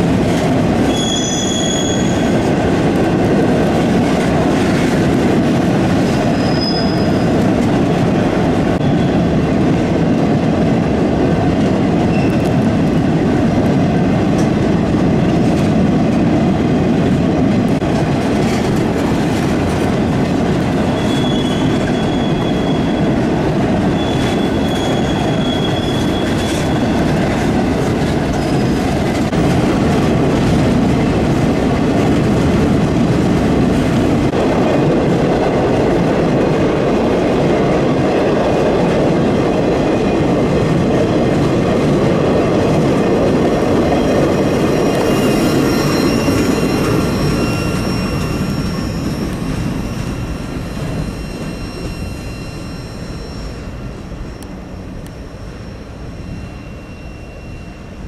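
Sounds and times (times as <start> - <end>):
freight train wheels rumbling: 0.0 - 58.0
faint high wheel squeal: 0.9 - 2.3, 6.2 - 7.4, 8.8 - 9.2, 20.9 - 23.2, 23.8 - 27.1, 43.9 - 58.0.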